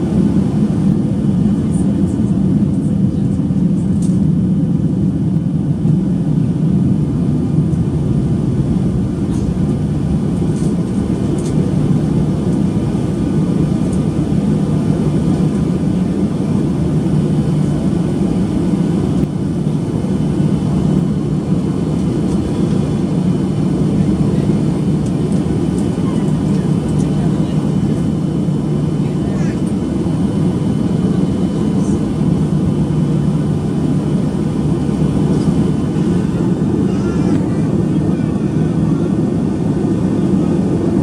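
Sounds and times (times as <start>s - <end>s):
airliner cabin rumble: 0.0s - 41.0s.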